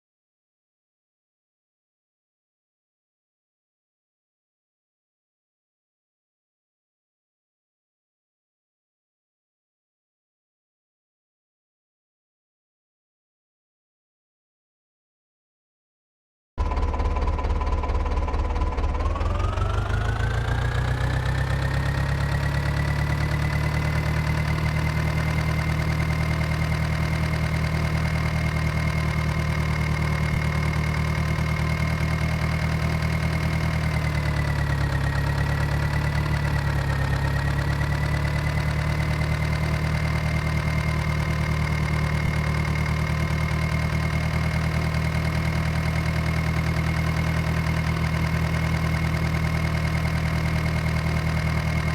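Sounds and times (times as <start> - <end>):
diesel tractor engine running: 16.6 - 51.9.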